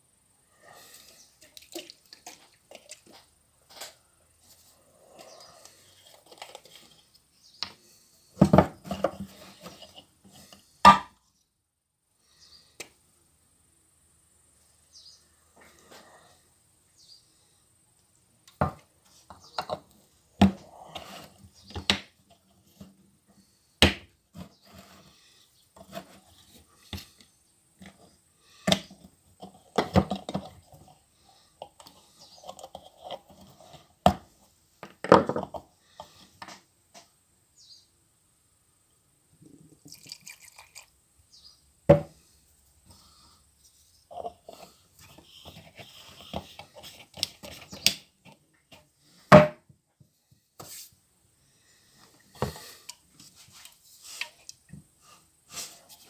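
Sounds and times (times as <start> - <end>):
hard objects knocking and clattering: 8.4 - 9.9, 34.8 - 35.7.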